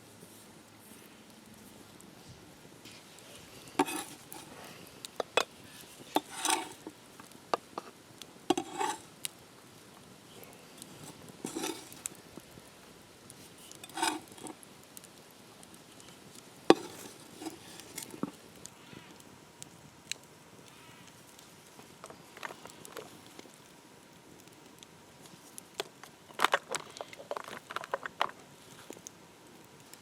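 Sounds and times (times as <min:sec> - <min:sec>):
metal utensils clinking on cookware: 0:06.1 - 0:06.9, 0:08.5 - 0:09.0, 0:13.8 - 0:14.5.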